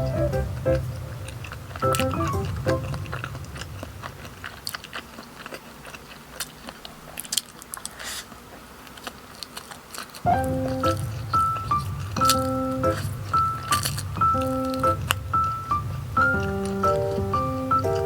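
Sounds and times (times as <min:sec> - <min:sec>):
background music: 0:00.0 - 0:03.0, 0:10.3 - 0:18.0
person biting and chewing food: 0:01.0 - 0:18.0.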